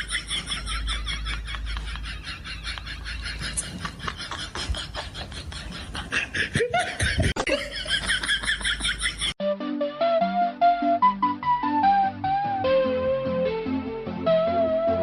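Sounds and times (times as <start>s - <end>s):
people laughing: 0.0s - 9.4s
flute-like music: 9.4s - 15.0s.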